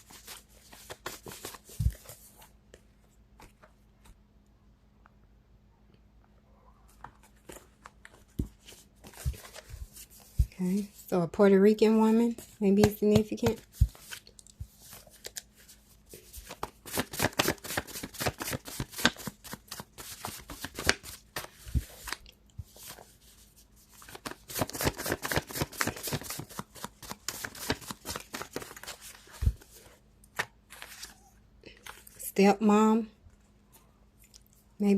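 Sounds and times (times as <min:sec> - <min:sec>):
cards being shuffled: 0:00.0 - 0:04.2, 0:07.0 - 0:10.9, 0:12.2 - 0:31.2.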